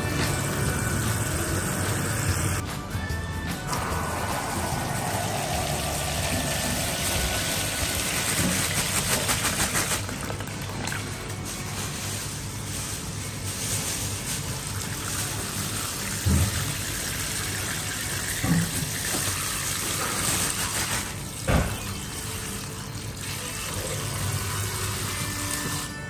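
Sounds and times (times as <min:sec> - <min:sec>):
tap running water into sink: 0:15.0 - 0:24.0.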